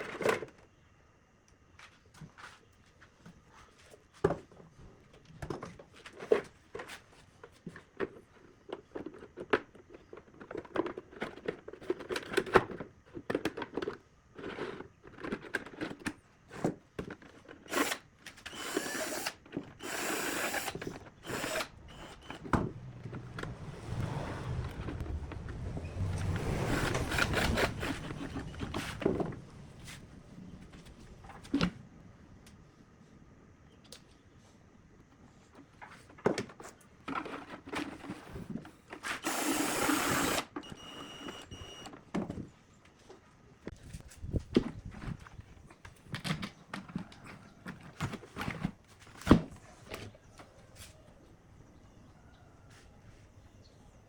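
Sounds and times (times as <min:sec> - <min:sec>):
rushing noise: 0:21.2 - 0:30.4.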